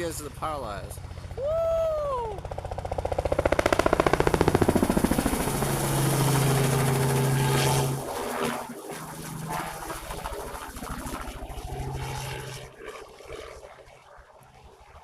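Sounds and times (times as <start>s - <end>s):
helicopter engine tone: 0.0s - 15.0s
helicopter rotor thumps: 2.4s - 13.6s.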